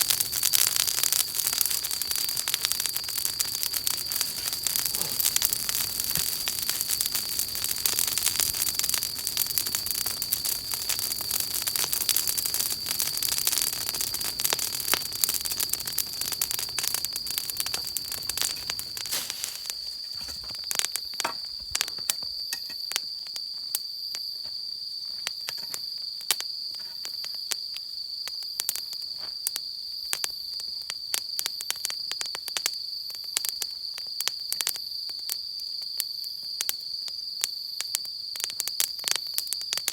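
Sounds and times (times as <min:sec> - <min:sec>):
campfire crackling and popping: 0:00.0 - 0:23.0, 0:37.8 - 0:39.9
cricket trill: 0:00.0 - 0:39.9
rushing hiss: 0:17.5 - 0:20.2.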